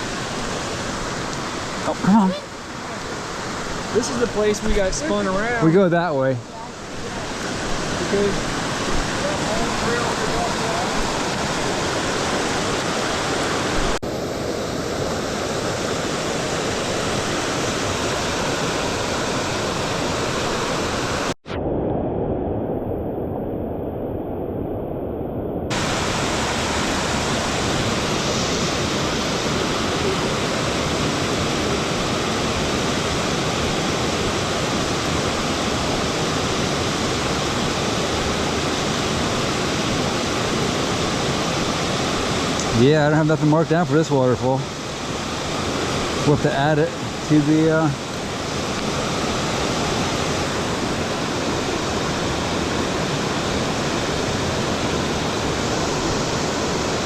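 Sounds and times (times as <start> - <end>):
waterfall rushing: 0.0 - 21.4, 25.7 - 57.0.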